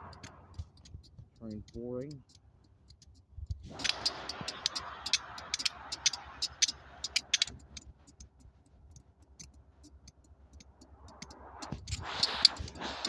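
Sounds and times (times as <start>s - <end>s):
train hum and rumble: 0.0s - 0.8s
sharp clicks crackling: 0.0s - 13.0s
hiss: 3.6s - 8.3s, 10.6s - 13.0s.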